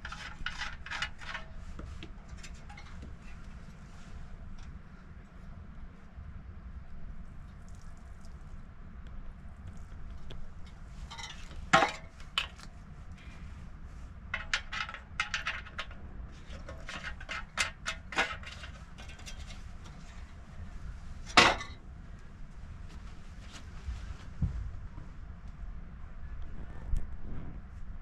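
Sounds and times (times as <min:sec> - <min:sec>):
low steady background noise: 0:00.0 - 0:28.0
objects clicking and knocking: 0:14.3 - 0:20.4.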